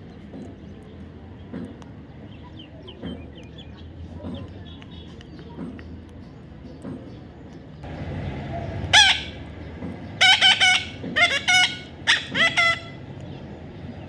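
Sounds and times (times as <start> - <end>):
parrot calling: 8.9 - 9.4, 10.2 - 13.0.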